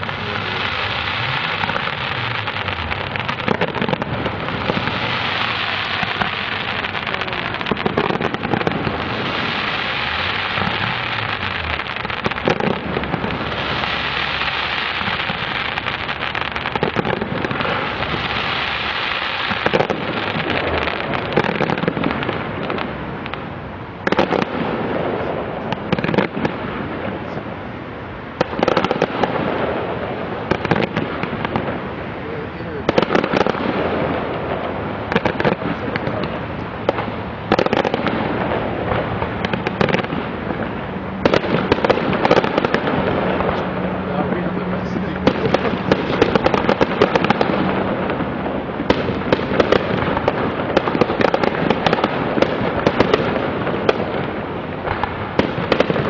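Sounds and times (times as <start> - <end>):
steady hiss: 0.0 - 23.8
distant fireworks bangs and crackles: 0.0 - 56.0.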